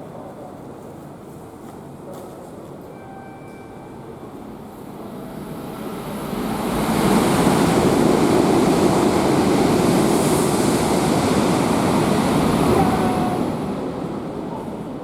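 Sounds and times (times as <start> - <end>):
high-speed train rushing past: 3.8 - 15.0.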